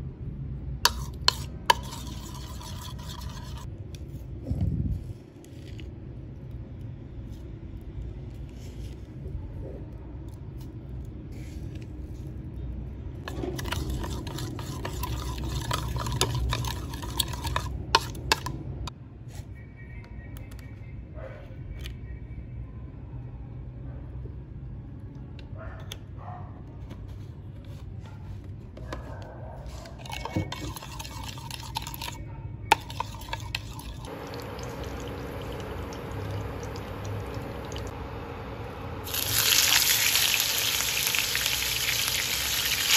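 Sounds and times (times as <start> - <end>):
metal spoon scraping a bowl: 0.9 - 3.7, 13.3 - 18.6, 29.6 - 37.3
humming cooktop: 30.0 - 42.9.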